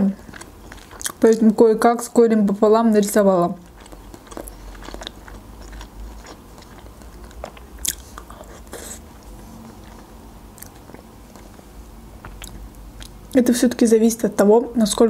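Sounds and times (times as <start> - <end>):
person biting and chewing tomato: 0.2 - 1.4, 3.6 - 13.3
mouth clicks and smacks: 12.2 - 13.3.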